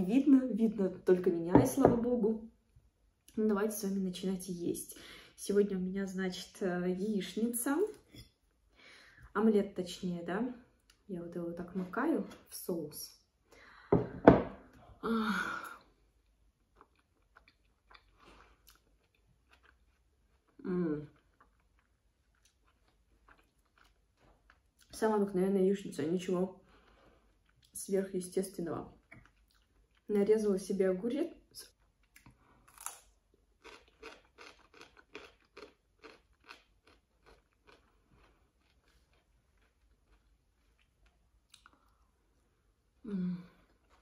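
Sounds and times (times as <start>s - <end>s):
person chewing food: 16.2s - 24.9s, 29.0s - 30.1s, 31.8s - 42.1s, 43.6s - 44.0s.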